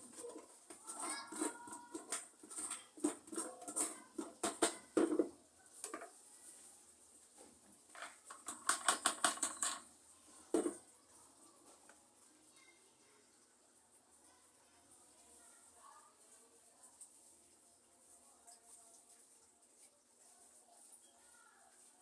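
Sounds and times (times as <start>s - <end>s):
pots and soil clicking and rustling: 0.0s - 12.2s.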